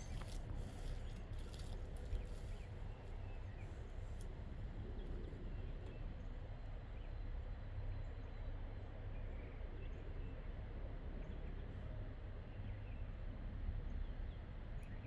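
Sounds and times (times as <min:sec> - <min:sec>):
dog digging in dirt: 0:00.0 - 0:02.6.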